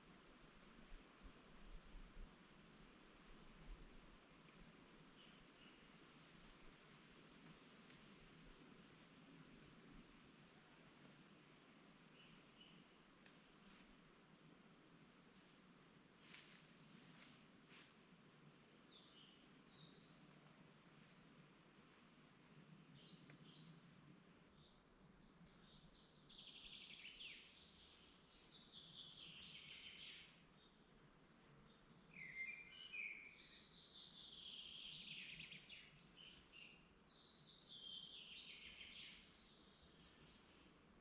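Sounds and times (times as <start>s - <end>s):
songbirds singing: 3.6s - 13.4s, 18.1s - 20.7s, 22.2s - 41.0s.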